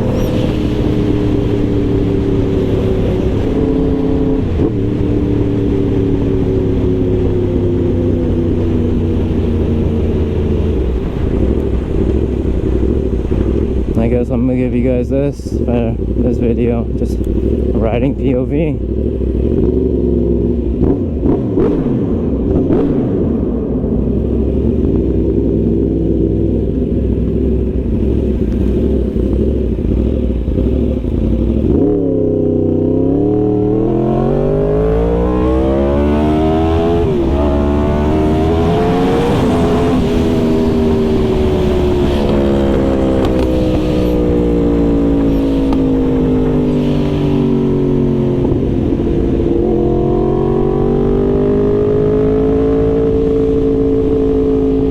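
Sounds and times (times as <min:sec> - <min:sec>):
wind noise: 0:00.0 - 0:18.3, 0:33.1 - 0:54.9
motorcycle engine revving: 0:00.0 - 0:54.9.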